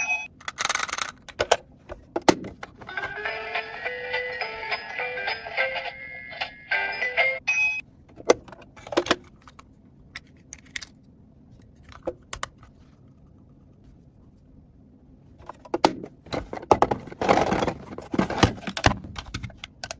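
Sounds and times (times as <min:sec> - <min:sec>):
plastic toy pieces clattering: 0:00.4 - 0:01.6
music track: 0:02.9 - 0:07.4.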